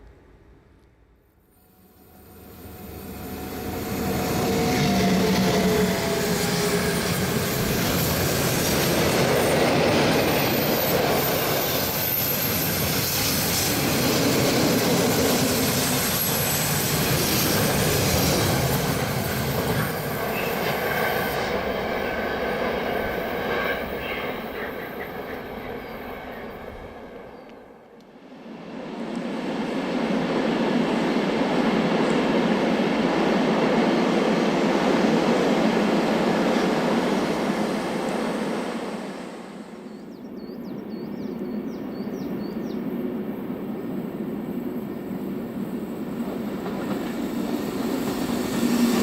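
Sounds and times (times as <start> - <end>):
train wheels rumbling on rails: 2.0 - 27.5, 41.0 - 49.0.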